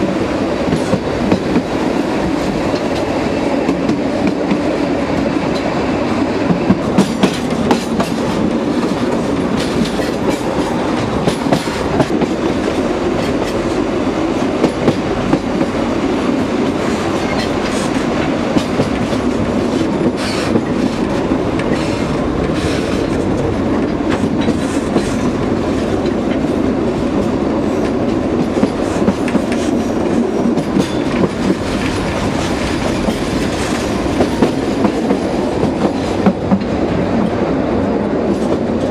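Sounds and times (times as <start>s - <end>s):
train rumbling along track: 0.0s - 38.9s
wheels clacking over rails: 6.5s - 13.8s, 27.2s - 36.8s.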